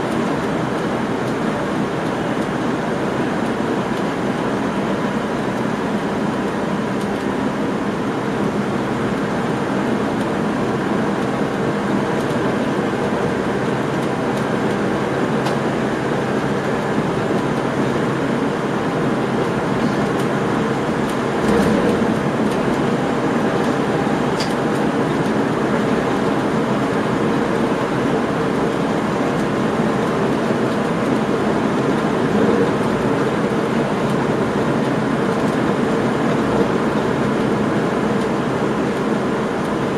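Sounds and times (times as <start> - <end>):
train wheels rumbling on rails: 0.0 - 39.9
train jolt: 19.4 - 38.4.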